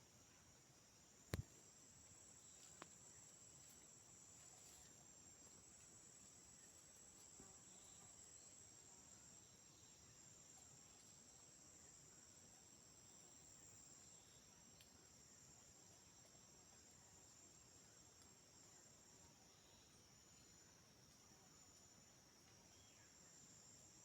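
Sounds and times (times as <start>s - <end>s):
crickets chirping: 0.0s - 24.0s
faint tick: 2.6s - 3.0s, 14.8s - 15.0s.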